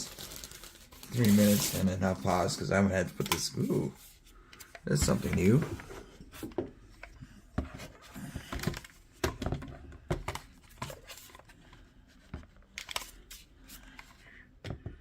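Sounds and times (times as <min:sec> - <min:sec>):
packaging rustling: 0:00.0 - 0:02.5.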